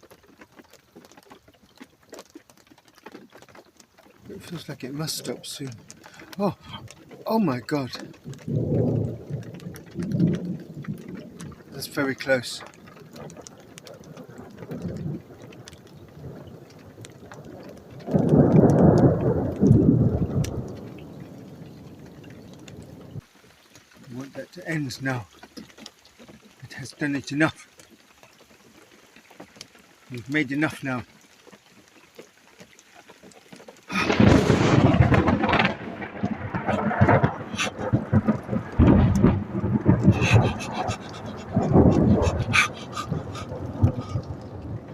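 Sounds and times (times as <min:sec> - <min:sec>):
steady rain: 0:00.0 - 0:44.9
thunder rumbling and crashing: 0:04.3 - 0:12.2, 0:18.0 - 0:21.3, 0:33.9 - 0:44.9.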